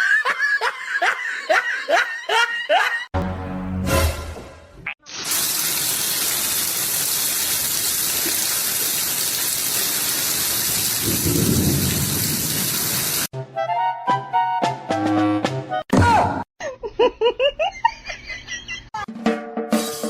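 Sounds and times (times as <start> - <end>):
music: 3.2 - 4.9, 13.3 - 15.9, 19.0 - 20.0.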